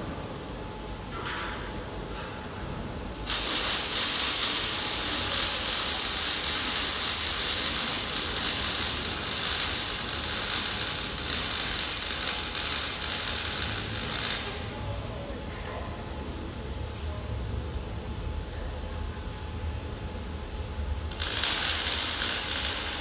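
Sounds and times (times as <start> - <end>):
workshop tool rasping hiss: 3.2 - 15.3, 21.1 - 23.0.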